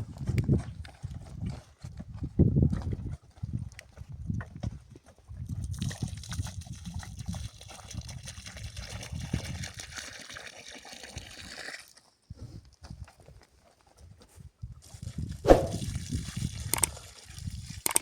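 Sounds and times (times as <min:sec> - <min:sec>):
low thumps: 0:15.5 - 0:15.8.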